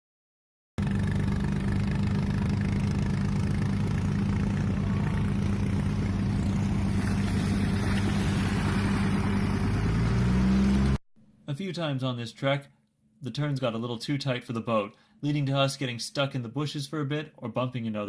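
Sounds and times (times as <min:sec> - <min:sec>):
boat engine running: 0:00.8 - 0:11.0.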